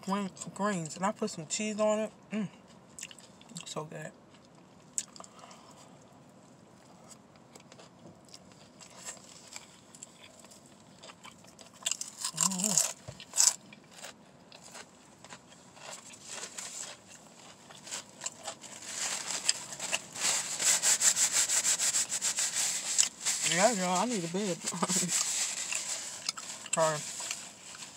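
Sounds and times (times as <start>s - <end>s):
person chewing food: 2.6s - 3.7s, 4.3s - 23.2s, 24.7s - 27.9s
paper wrapper crinkling: 17.8s - 27.9s.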